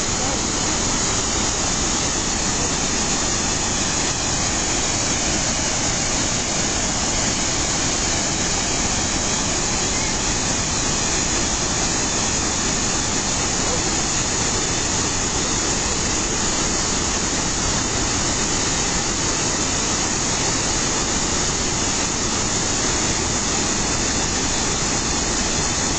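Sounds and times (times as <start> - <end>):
waterfall rushing: 0.0 - 25.9.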